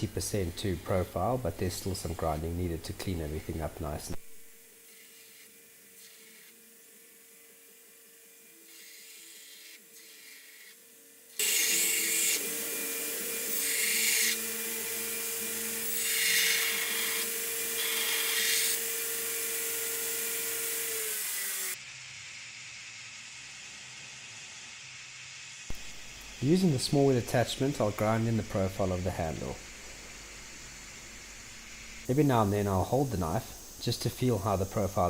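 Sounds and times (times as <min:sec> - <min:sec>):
belt grinder grinding steel: 0:11.4 - 0:21.9.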